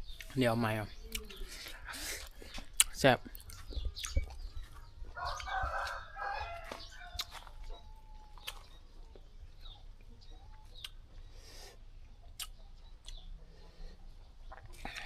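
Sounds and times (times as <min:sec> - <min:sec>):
rooster crowing: 0:05.2 - 0:08.4.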